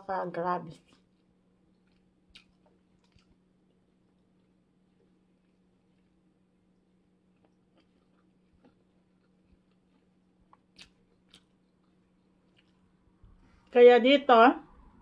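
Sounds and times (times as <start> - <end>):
low steady hum: 0.0 - 15.0
faint chewing: 0.7 - 13.8.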